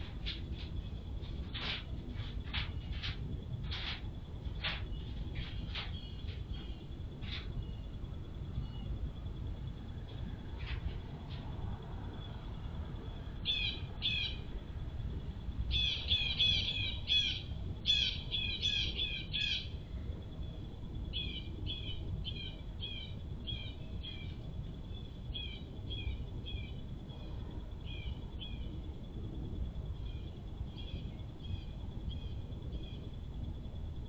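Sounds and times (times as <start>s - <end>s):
songbird chirping: 4.6s - 9.0s, 13.0s - 14.5s, 15.7s - 19.8s.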